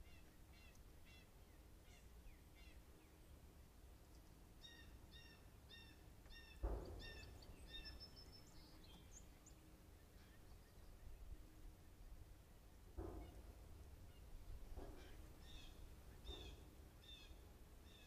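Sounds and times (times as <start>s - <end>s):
thump: 6.6s - 7.9s, 13.0s - 13.4s.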